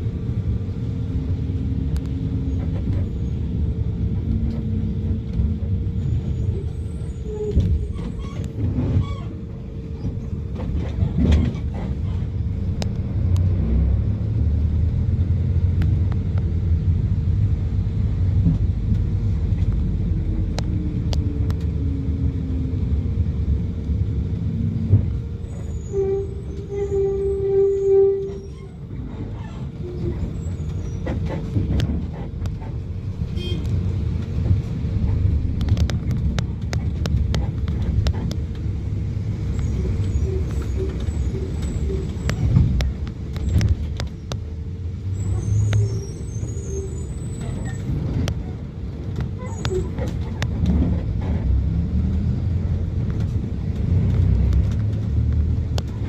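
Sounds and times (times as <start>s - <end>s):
road traffic rumbling: 0.0s - 56.0s
vehicle horn: 33.3s - 33.7s.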